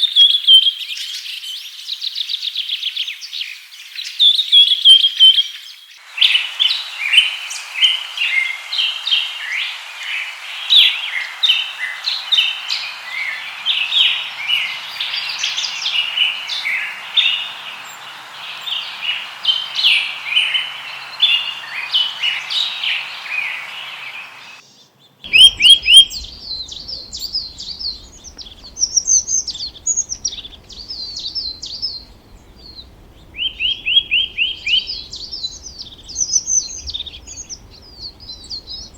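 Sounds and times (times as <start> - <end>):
steady hiss: 6.0 - 24.6, 25.3 - 38.9
songbirds chirping: 6.0 - 38.9
low rumble: 25.3 - 38.9.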